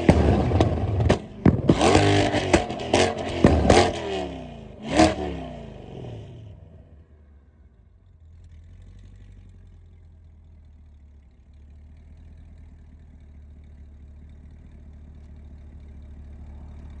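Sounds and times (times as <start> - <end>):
car engine revving: 0.0 - 10.1, 15.3 - 17.0
car engine idling: 0.0 - 17.0.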